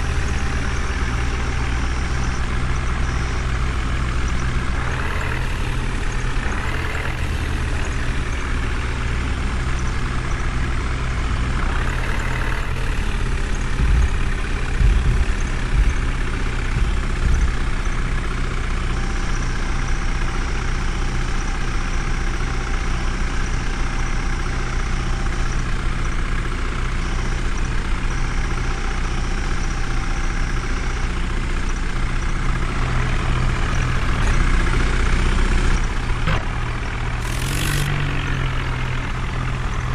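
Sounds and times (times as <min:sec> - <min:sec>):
diesel engine running: 0:00.0 - 0:39.9
heavy low thumps: 0:13.1 - 0:18.1.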